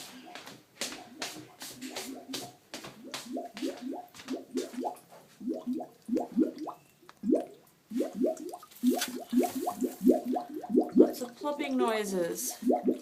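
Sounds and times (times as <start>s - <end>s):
toilet water plopping and gurgling: 1.9s - 11.8s, 12.6s - 13.0s.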